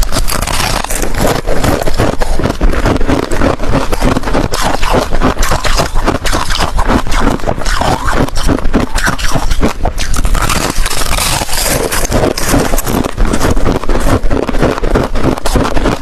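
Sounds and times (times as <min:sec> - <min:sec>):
ice cubes being crunched: 0:00.0 - 0:16.0.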